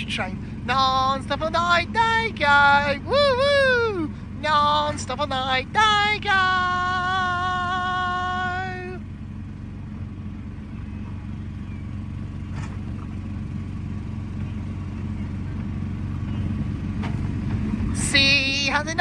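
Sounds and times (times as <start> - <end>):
ride car humming along track: 0.0 - 19.0.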